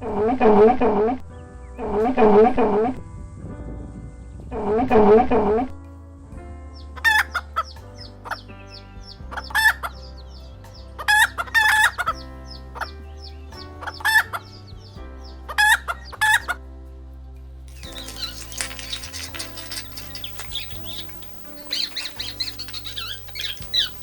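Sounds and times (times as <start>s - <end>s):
faint high chirps: 17.7s - 24.0s.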